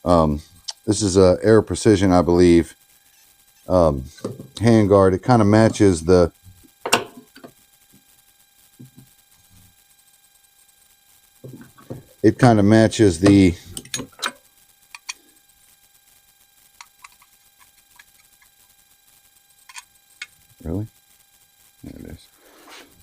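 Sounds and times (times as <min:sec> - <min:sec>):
small rifle parts clicking: 0:13.8 - 0:15.2.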